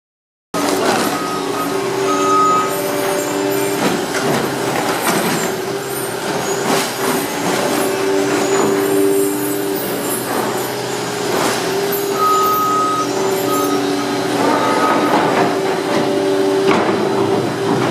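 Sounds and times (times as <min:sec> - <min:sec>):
industrial baler running: 0:00.6 - 0:17.9
clanks and rattles: 0:14.3 - 0:17.9.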